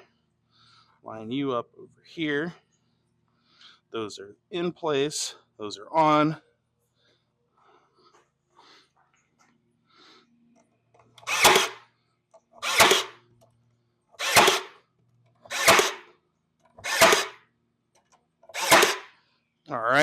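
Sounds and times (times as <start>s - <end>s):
cordless stapler whirr and snap: 11.2s - 11.8s, 12.6s - 13.2s, 14.2s - 14.8s, 15.4s - 16.1s, 16.7s - 17.4s, 18.4s - 19.1s.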